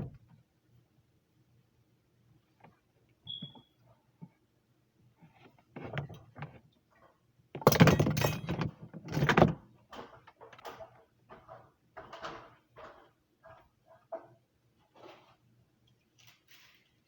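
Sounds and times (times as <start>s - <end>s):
knocks and scraping handling noises: 4.0s - 17.0s.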